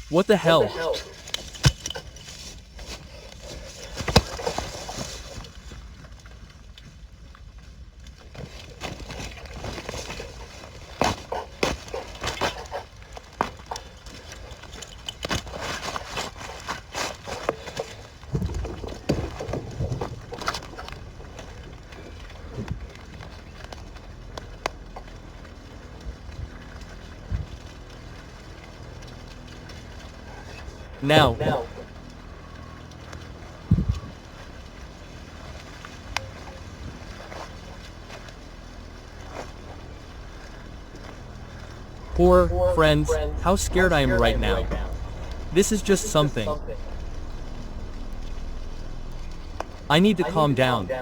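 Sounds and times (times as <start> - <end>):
steady low rumble: 38.4 - 51.0.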